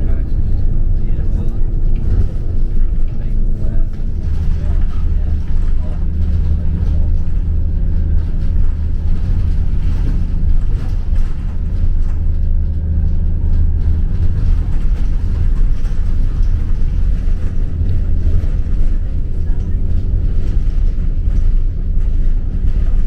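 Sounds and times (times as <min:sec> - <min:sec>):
moving vehicle drone and rumble: 0:00.0 - 0:23.0.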